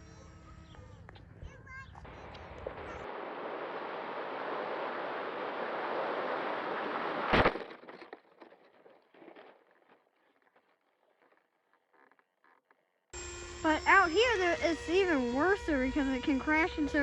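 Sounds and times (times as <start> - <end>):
loud crash: 2.1 - 9.6
faint rustles and clicks: 7.2 - 13.0
model airplane motor rushing: 13.2 - 17.0.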